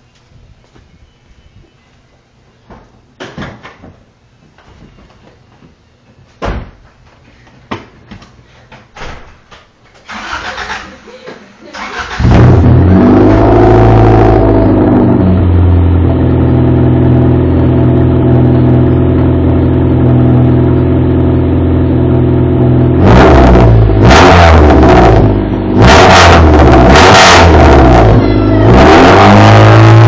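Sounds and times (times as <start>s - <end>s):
car engine idling and revving: 11.9s - 30.0s.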